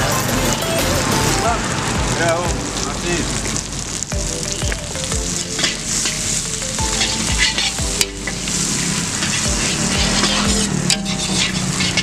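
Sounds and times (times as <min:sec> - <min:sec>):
bean sprouts sizzling in a wok: 0:00.0 - 0:12.0
metal spatula scraping a pan: 0:06.9 - 0:12.0.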